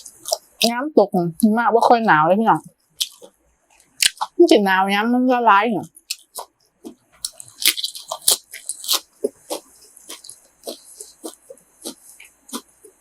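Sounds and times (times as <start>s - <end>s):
person chewing food: 0.0s - 0.7s, 2.8s - 4.4s, 5.9s - 13.0s.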